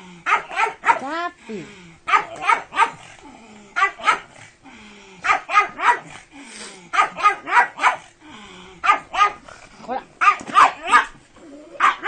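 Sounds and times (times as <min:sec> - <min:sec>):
dog yapping: 0:00.3 - 0:01.1, 0:02.1 - 0:03.1, 0:03.8 - 0:04.3, 0:05.2 - 0:06.1, 0:06.9 - 0:08.1, 0:08.8 - 0:09.4, 0:10.2 - 0:11.2, 0:11.8 - 0:12.0
dog grumbling: 0:01.4 - 0:10.0, 0:11.3 - 0:12.0.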